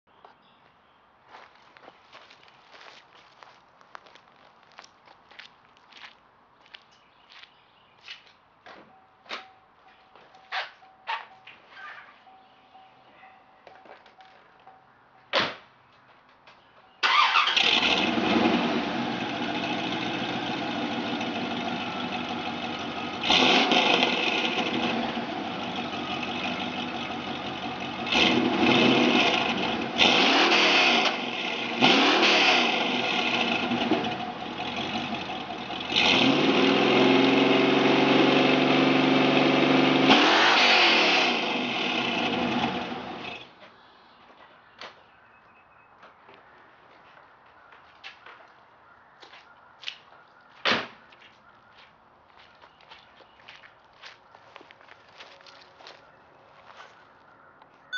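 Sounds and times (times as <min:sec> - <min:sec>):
car engine revving: 0:17.1 - 0:43.5.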